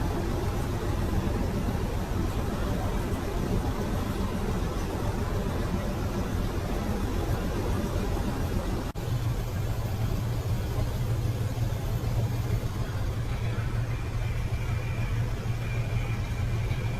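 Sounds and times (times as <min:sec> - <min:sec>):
heavy truck engines rumbling: 0:00.0 - 0:16.9.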